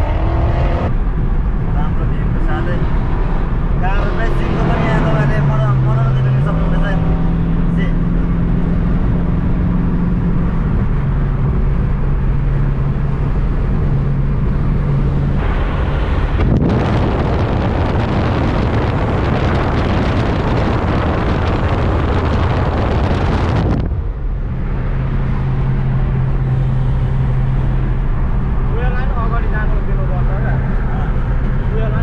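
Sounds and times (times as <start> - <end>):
wind noise rushing: 0.0 - 28.7
car engine droning: 0.0 - 32.0.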